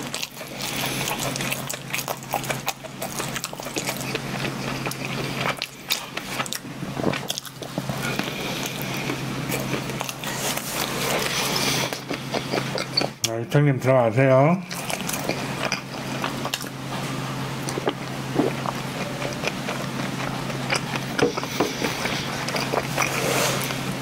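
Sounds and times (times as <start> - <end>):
chewing with wet mouth clicks: 0.0 - 13.4, 14.7 - 16.8, 17.6 - 23.2.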